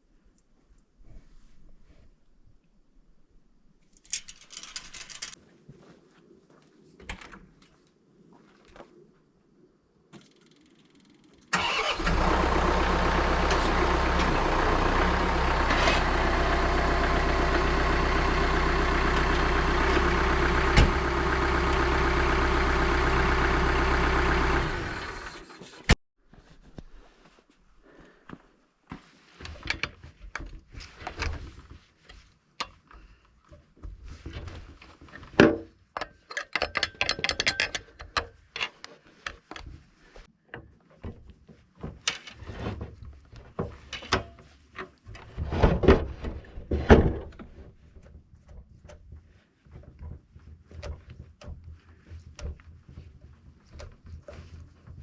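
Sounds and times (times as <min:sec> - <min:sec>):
objects knocking and clicking: 0:36.0 - 0:38.7.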